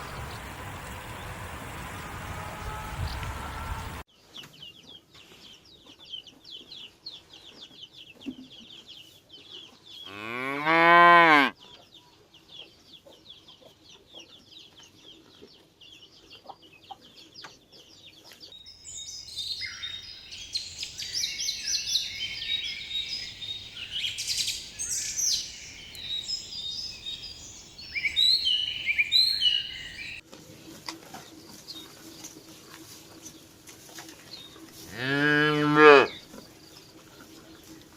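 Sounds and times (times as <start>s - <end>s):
cow mooing: 10.1s - 11.5s, 34.9s - 36.2s
birds chirping: 18.5s - 30.2s.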